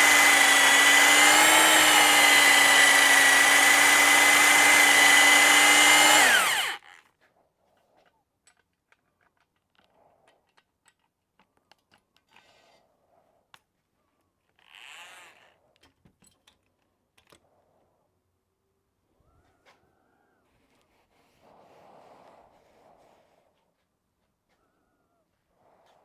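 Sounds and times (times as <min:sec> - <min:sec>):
electric drill whine: 0:00.0 - 0:06.8.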